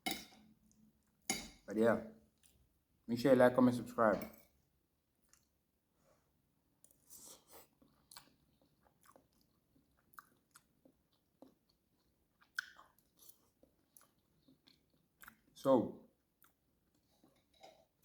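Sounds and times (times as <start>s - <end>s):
chewing soft food: 2.2s - 2.7s, 5.1s - 5.7s, 6.8s - 18.0s.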